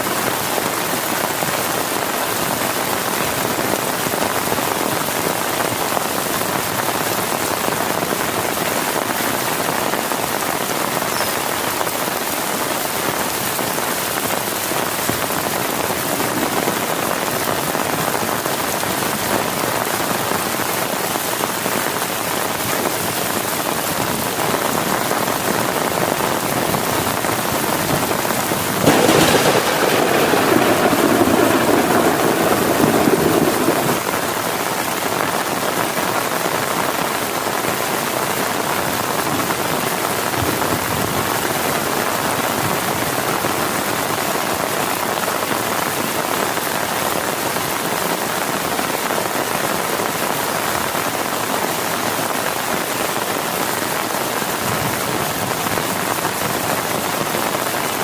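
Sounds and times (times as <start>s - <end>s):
heavy rain on a tent: 0.0s - 58.0s
low rumble of thunder: 26.9s - 34.6s.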